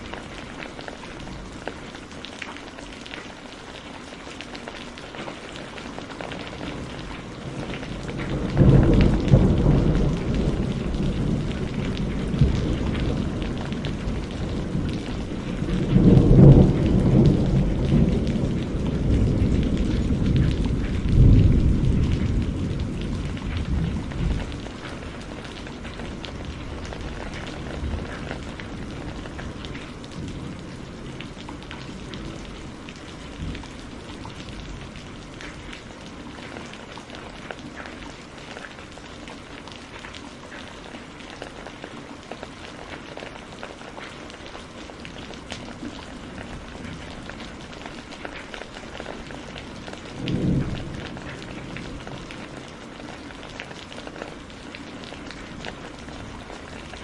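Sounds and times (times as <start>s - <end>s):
steady rain pattering: 0.0s - 57.0s
thunder rumbling: 5.3s - 37.9s, 44.6s - 57.0s.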